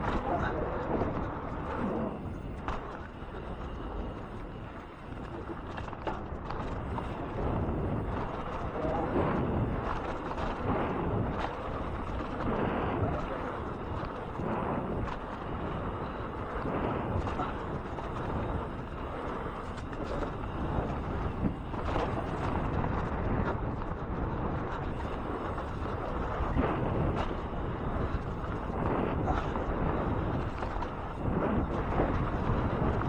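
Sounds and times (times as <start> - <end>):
wind and tyre noise: 0.0 - 33.0.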